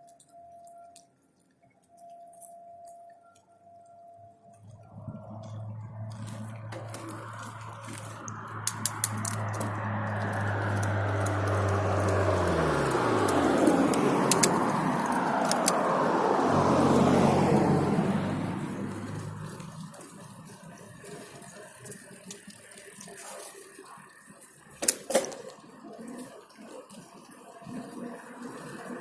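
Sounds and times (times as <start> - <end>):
quiet street sound: 0.0 - 29.0
clicks: 4.5 - 16.5
vehicle passing by: 4.6 - 22.0.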